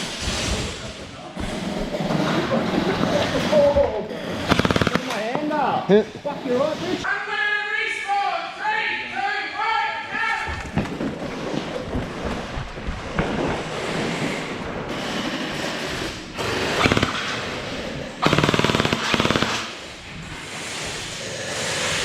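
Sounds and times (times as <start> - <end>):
gel blasters firing bursts: 4.4 - 5.2, 15.6 - 19.9.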